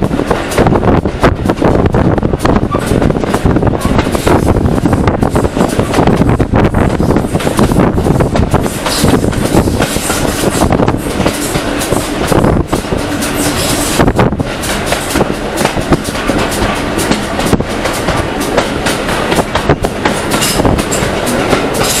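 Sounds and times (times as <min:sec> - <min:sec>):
train rumbling: 0:00.0 - 0:22.0
wheels clicking over rail joints: 0:08.4 - 0:22.0.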